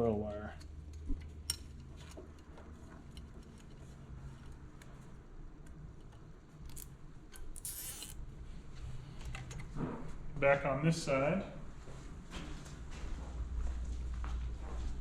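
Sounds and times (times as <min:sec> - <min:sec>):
zip tie ratcheting: 0:06.6 - 0:08.2.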